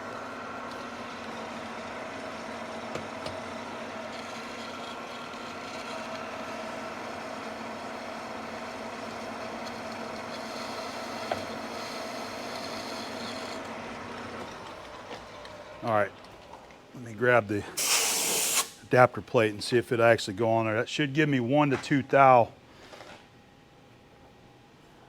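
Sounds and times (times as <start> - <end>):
lathe humming with whining gears: 0.0 - 17.7.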